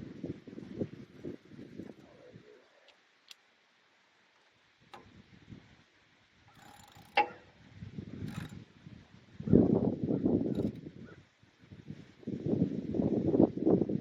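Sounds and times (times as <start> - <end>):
low wind rumble: 0.0 - 2.7, 7.0 - 14.0
metal tools clicking and clinking: 6.5 - 7.4, 8.3 - 8.6, 10.6 - 10.8.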